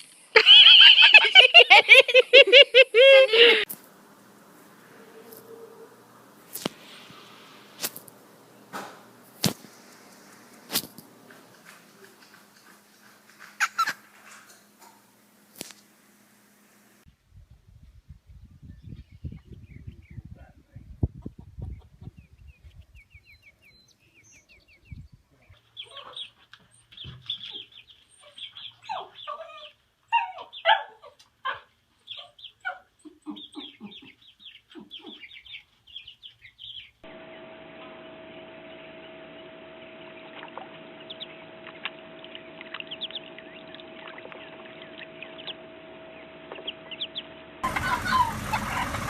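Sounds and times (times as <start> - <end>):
steady hum: 0.0 - 17.1, 37.0 - 49.0
birds clucking and squawking: 9.6 - 15.2, 25.7 - 36.1, 39.8 - 49.0
scattered chirps: 37.1 - 49.0.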